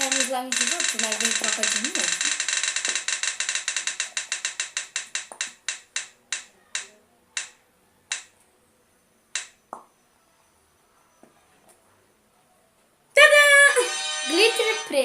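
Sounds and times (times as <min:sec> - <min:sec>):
roulette wheel clicking: 0:00.0 - 0:08.3.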